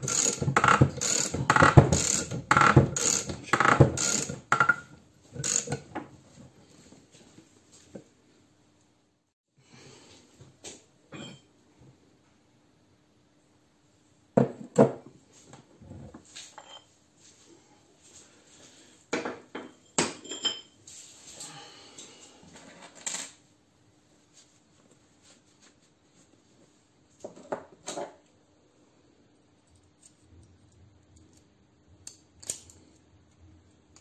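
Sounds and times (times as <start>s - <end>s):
metal tools clinking and knocking: 16.5s - 16.9s.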